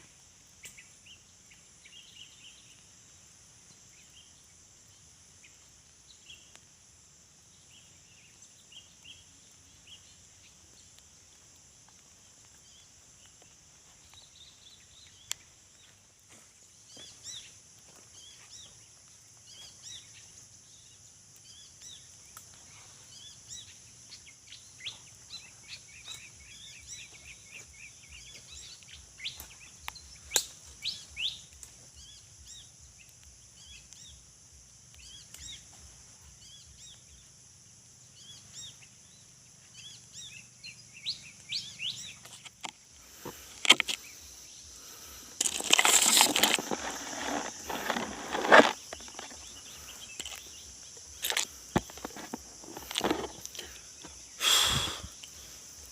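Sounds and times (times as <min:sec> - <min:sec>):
insect drone: 0:00.0 - 0:55.9
birds chirping: 0:07.6 - 0:34.3, 0:34.9 - 0:37.4, 0:38.0 - 0:55.9
rustling and scraping: 0:42.2 - 0:44.2, 0:45.3 - 0:54.2.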